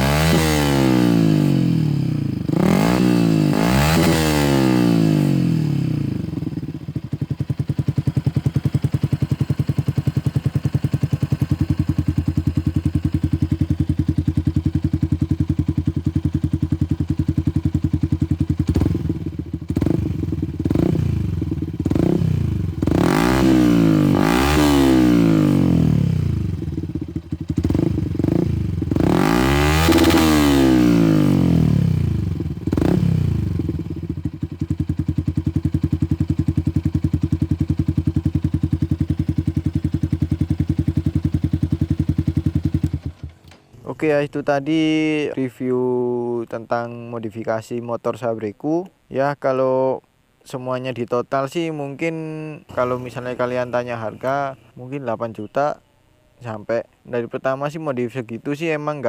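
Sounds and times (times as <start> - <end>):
motorcycle engine revving and idling: 0.0 - 43.6.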